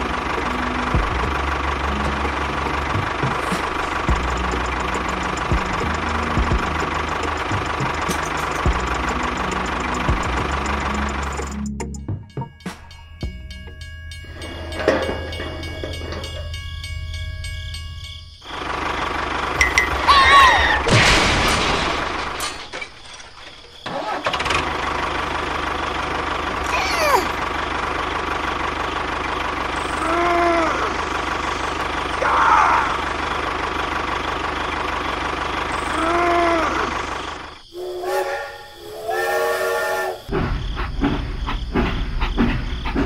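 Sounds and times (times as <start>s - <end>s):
vehicle engine running: 0.0s - 37.7s
steady horn-like tone: 37.7s - 40.3s.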